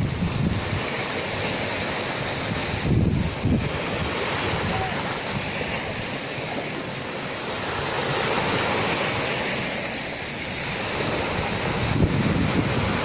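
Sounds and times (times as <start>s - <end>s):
sea surf washing in: 0.0s - 13.0s.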